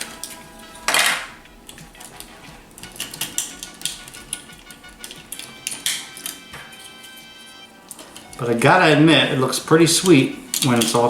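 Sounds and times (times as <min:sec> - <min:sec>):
plastic toy parts clicking: 0:00.0 - 0:06.7, 0:10.0 - 0:11.0.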